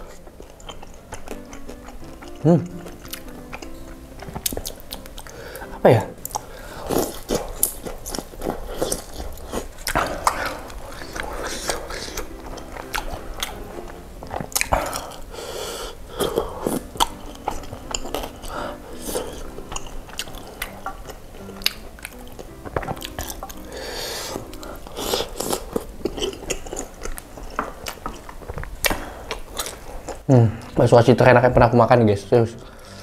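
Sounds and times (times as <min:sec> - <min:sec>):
close chewing and biting: 0:00.0 - 0:30.8.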